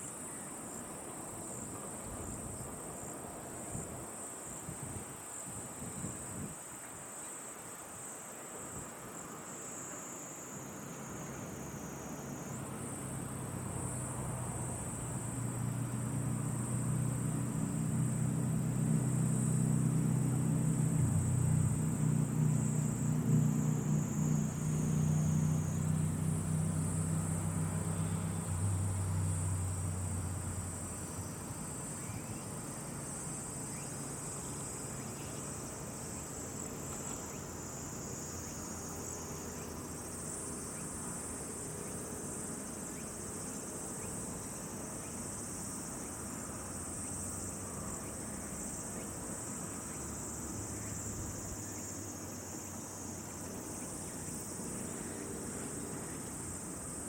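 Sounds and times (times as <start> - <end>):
crickets trilling: 0.0 - 57.0.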